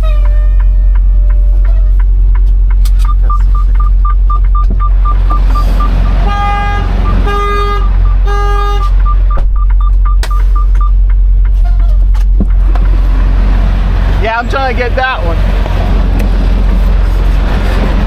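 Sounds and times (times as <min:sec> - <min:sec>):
truck engine rumble: 0:00.0 - 0:18.0
short electronic beeps: 0:03.0 - 0:11.0
vehicle horn honking: 0:05.4 - 0:09.2.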